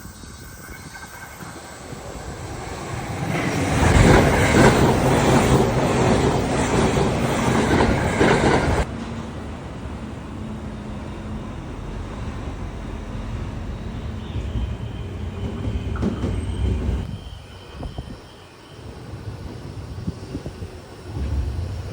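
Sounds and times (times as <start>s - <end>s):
low train rumble with hum: 0.0s - 21.9s
train wheels clattering over rails: 0.7s - 9.3s, 14.4s - 17.1s.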